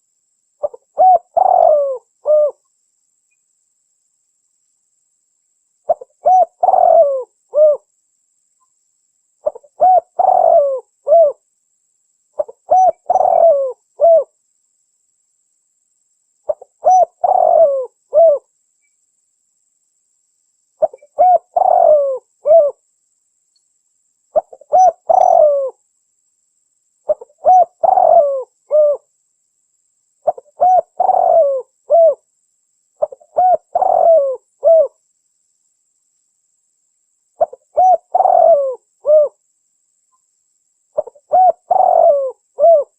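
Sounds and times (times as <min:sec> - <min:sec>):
dove cooing: 0:00.6 - 0:02.6, 0:05.9 - 0:07.9, 0:09.4 - 0:11.4, 0:12.4 - 0:14.3, 0:16.5 - 0:18.5, 0:20.8 - 0:22.8, 0:24.4 - 0:25.8, 0:27.1 - 0:29.1, 0:30.2 - 0:32.2, 0:33.0 - 0:35.0, 0:37.4 - 0:39.4, 0:41.0 - 0:42.9.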